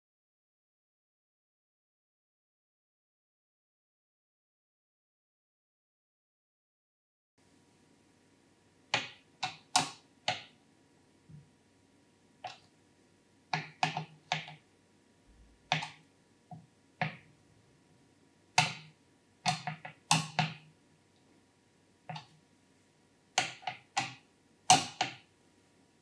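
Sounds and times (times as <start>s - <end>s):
computer hardware clicks and taps: 8.9s - 10.6s, 12.4s - 12.7s, 13.5s - 14.7s, 15.6s - 17.3s, 18.5s - 20.7s, 22.0s - 22.4s, 23.4s - 25.3s.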